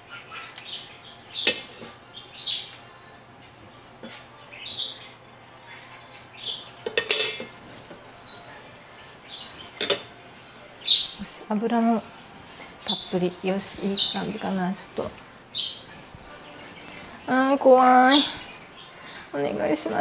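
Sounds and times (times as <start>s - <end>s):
small bird chirping: 8.3s - 8.7s, 10.8s - 11.2s, 13.8s - 14.4s, 15.5s - 16.0s.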